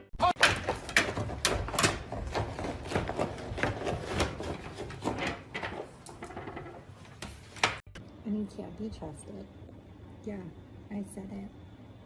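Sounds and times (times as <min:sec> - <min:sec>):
objects clattering and clicking: 0:00.3 - 0:07.8.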